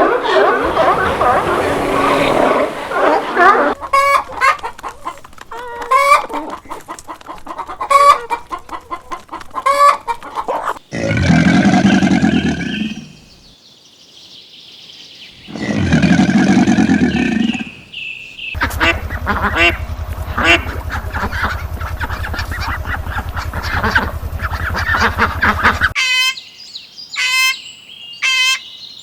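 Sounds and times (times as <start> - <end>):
long loud animal calls: 0.0 - 4.2, 10.9 - 13.4, 15.5 - 17.9, 18.6 - 26.2
chickens clucking: 0.0 - 10.8, 18.6 - 26.0.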